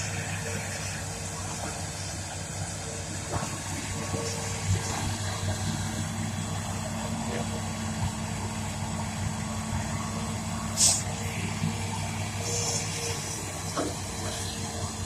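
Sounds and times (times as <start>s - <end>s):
excavator diesel engine running: 0.0s - 15.0s
loud hiss: 10.6s - 15.0s.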